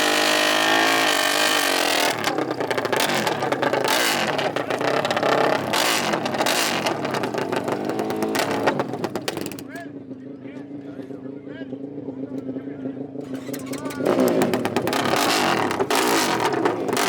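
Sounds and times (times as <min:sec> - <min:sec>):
racing engines revving: 0:00.0 - 0:09.7, 0:13.2 - 0:17.0.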